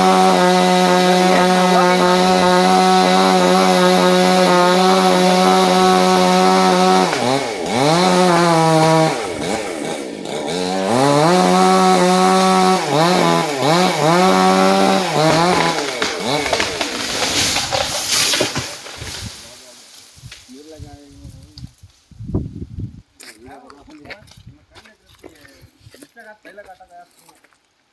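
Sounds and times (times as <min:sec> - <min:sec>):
chainsaw engine revving: 0:00.0 - 0:20.1.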